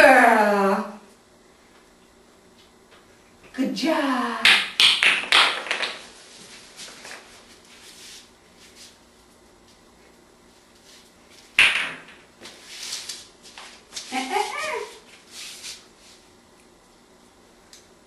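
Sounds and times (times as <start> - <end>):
shuffling noises: 6.1 - 9.8, 12.4 - 16.4.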